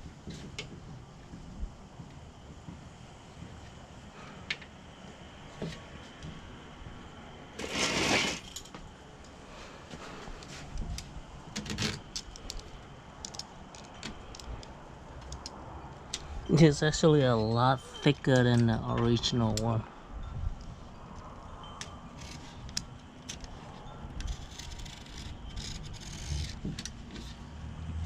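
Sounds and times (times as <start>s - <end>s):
scraping rustle: 7.6s - 8.8s.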